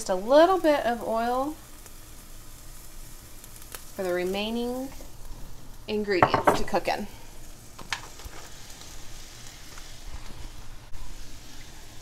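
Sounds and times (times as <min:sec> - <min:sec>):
oil sizzling in a wok: 0:00.0 - 0:12.0.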